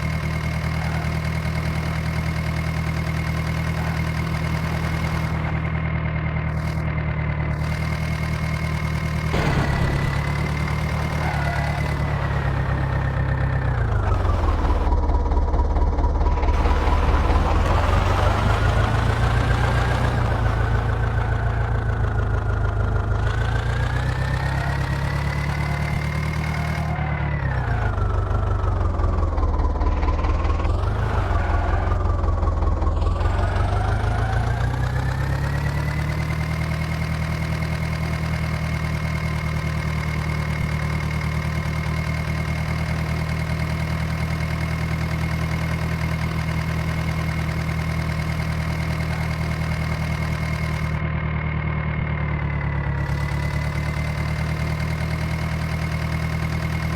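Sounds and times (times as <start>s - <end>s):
heavy machine diesel engine running: 0.0s - 56.9s.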